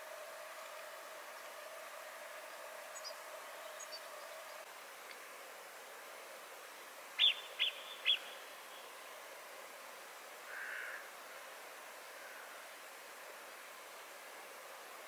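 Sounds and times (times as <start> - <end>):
faint steady hiss: 0.0 - 15.0
bird chirping: 2.9 - 4.6, 7.2 - 8.9.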